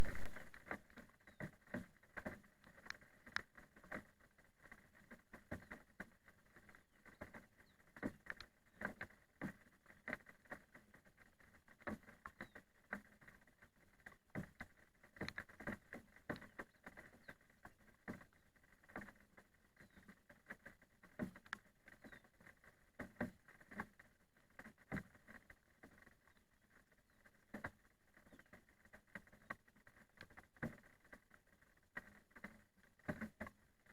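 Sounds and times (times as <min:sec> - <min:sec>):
raindrops tapping: 0:00.0 - 0:04.0.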